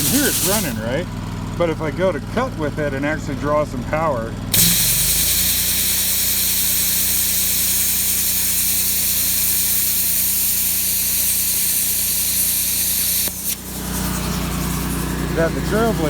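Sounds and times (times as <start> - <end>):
plasma cutter hissing: 0.0 - 0.9, 4.6 - 16.0
generator engine revving: 0.0 - 16.0.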